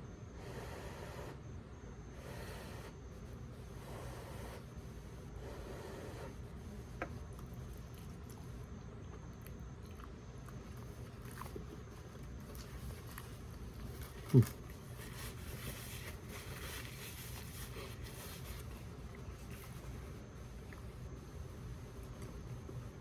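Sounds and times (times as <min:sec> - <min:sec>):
person chewing food: 0:07.3 - 0:16.6.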